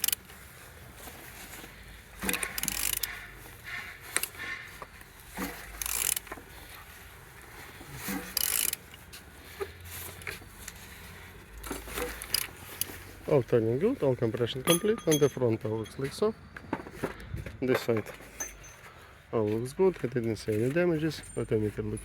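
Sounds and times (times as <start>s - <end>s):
ratchet wrench clicking: 0.0s - 0.2s, 2.2s - 3.2s, 5.7s - 6.4s, 8.3s - 9.0s, 12.2s - 13.0s.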